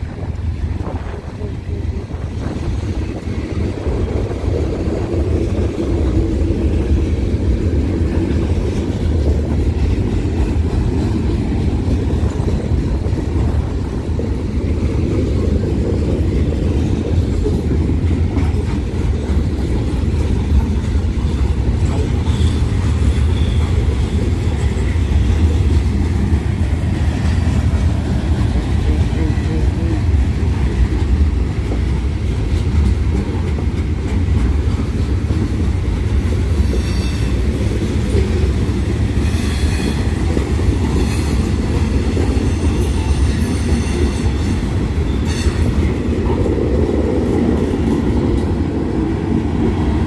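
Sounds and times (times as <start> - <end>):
train rumbling on the track: 0.0 - 50.0.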